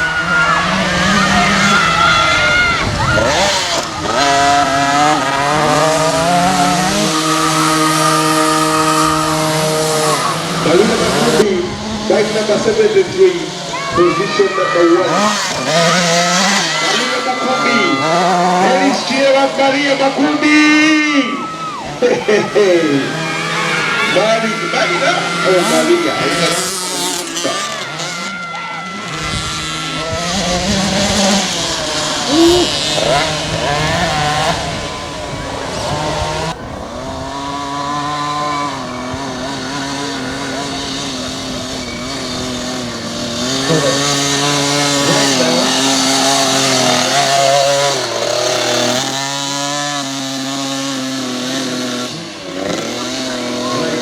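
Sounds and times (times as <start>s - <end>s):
motocross bike engines revving: 0.0s - 54.0s.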